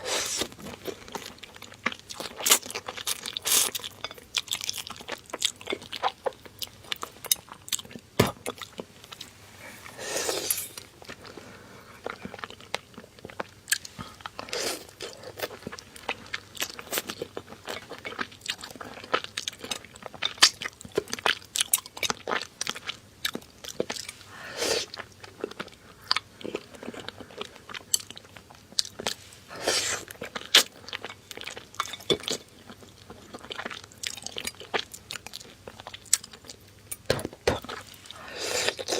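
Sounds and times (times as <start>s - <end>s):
chewing and crunching food: 0.0s - 38.9s.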